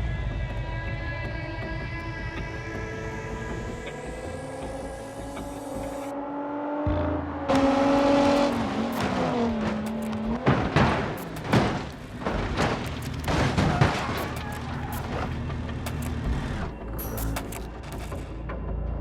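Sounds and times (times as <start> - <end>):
car crash impacts and crunches: 7.5 - 16.2.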